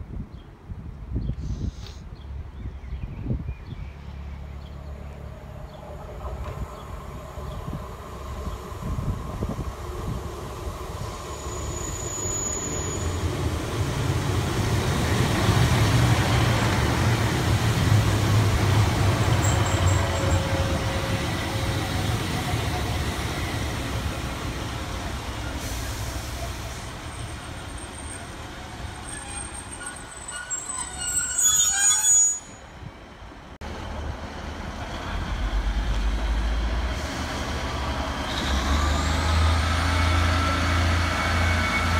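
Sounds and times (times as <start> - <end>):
passenger train rumbling past: 3.9 - 31.4, 32.7 - 41.9
high-pitched squeal: 10.9 - 13.5.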